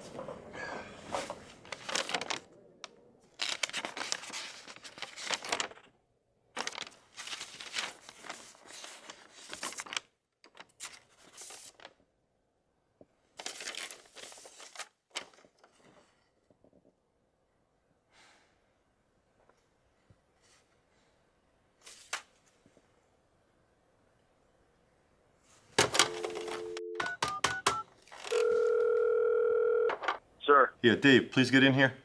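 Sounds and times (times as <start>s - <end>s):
rustling and crinkling: 1.0s - 2.5s, 3.2s - 12.0s, 13.4s - 16.9s.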